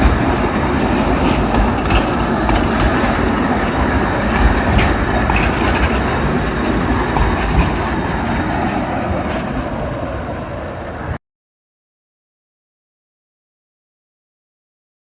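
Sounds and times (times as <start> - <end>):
wheels clicking over rails: 0.0 - 10.7
train rumbling along track: 0.0 - 11.2.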